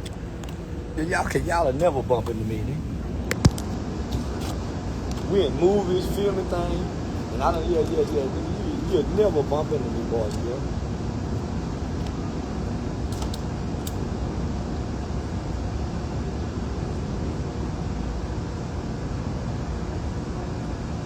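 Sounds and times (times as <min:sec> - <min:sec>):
steady rumbling: 0:00.0 - 0:15.4.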